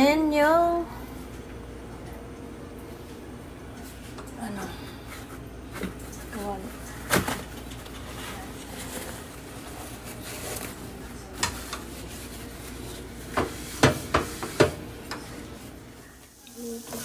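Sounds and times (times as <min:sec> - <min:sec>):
wok and utensils clattering: 0:11.3 - 0:15.4
knocks on stove: 0:13.4 - 0:14.8.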